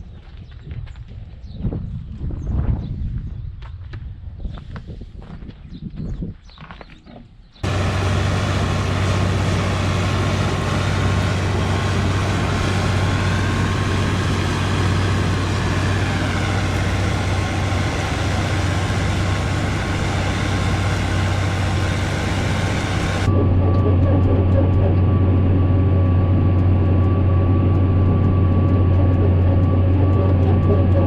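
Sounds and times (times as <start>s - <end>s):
tractor engine running: 7.6s - 31.0s.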